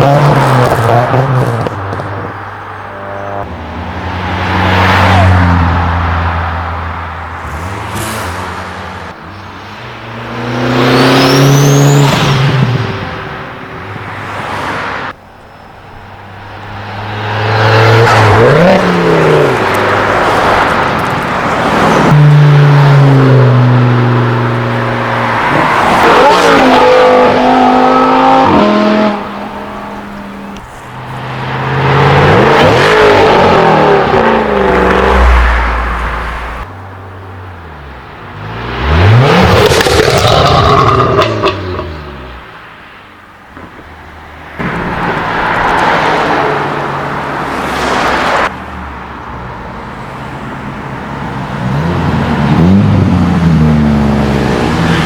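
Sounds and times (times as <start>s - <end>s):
cars accelerating with loud exhaust: 16.5s - 35.6s, 38.3s - 42.4s, 49.8s - 55.0s.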